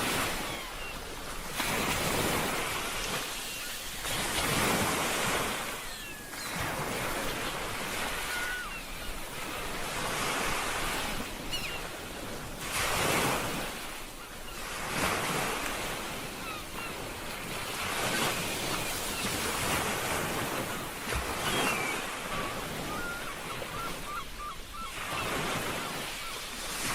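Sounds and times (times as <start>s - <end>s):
ocean waves breaking: 0.0s - 26.9s
faint chirping calls: 2.6s - 4.7s, 5.4s - 9.2s, 11.4s - 12.0s, 21.3s - 26.4s.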